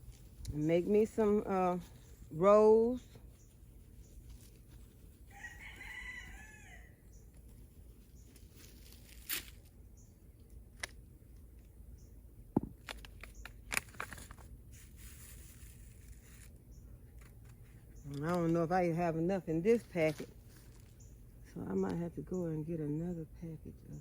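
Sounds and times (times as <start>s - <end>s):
hands rustling in soil: 0.0s - 11.8s
rooster crowing: 5.3s - 7.0s.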